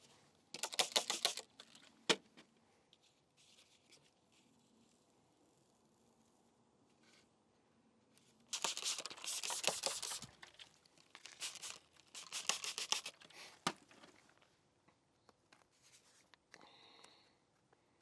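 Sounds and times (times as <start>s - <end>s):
backing paper peeling and crinkling: 8.6s - 13.3s.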